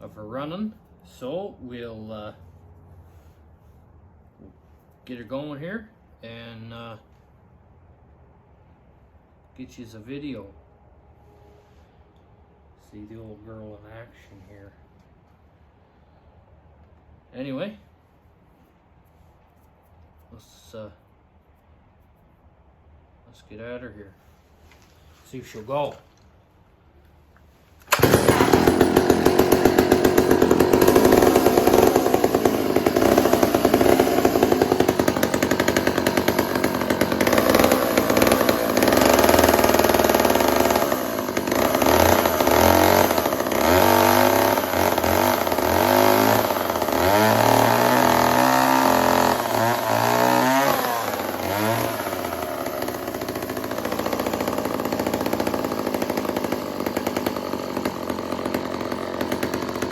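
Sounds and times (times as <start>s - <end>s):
chainsaw revving: 27.8s - 59.9s.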